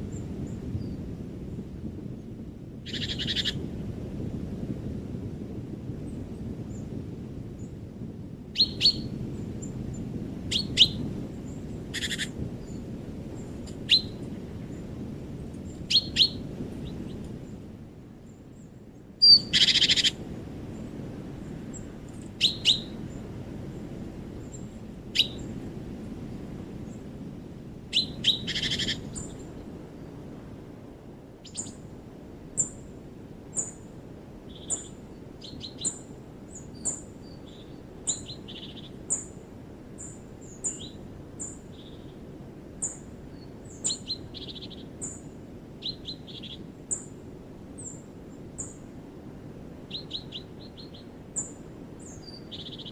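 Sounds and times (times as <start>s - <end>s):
birds chirping: 10.5s - 14.8s, 15.6s - 17.2s, 21.7s - 23.3s, 25.2s - 25.6s, 27.9s - 30.2s, 34.5s - 39.3s, 40.0s - 42.2s, 42.8s - 47.1s, 49.9s - 52.9s.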